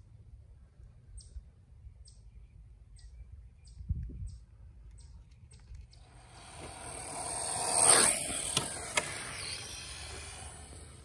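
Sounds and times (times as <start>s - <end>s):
low outdoor rumble: 4.5s - 11.0s.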